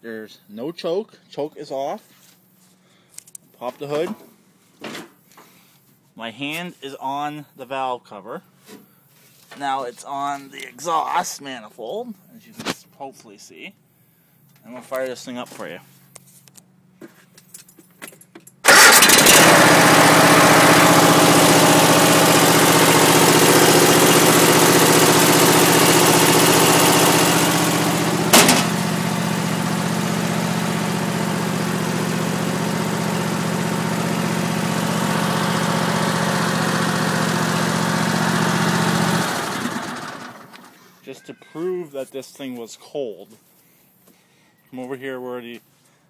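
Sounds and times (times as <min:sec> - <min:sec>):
mower engine running: 0:18.6 - 0:40.8.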